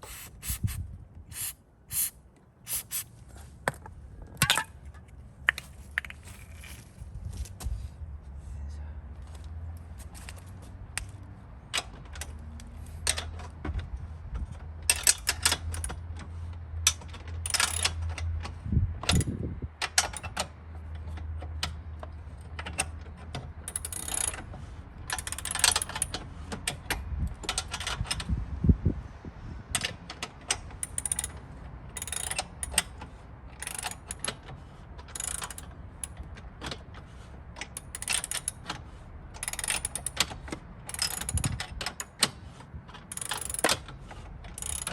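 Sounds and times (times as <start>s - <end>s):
hand tools clicking and clinking: 0.0s - 2.1s, 3.7s - 6.9s, 44.5s - 44.9s.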